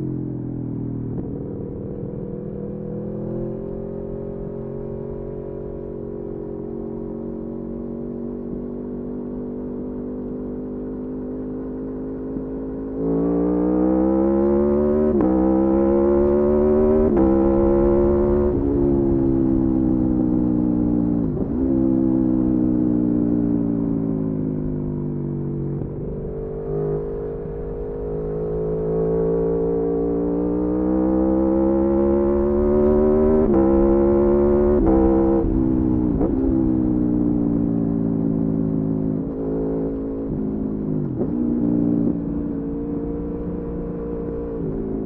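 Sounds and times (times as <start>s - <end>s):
motorcycle engine accelerating: 0.0s - 45.0s.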